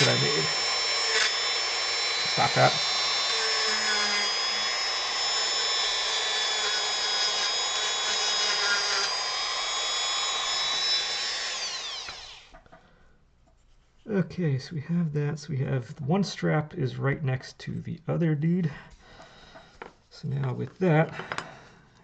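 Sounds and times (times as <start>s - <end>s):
rotary tool whining: 0.0s - 12.6s.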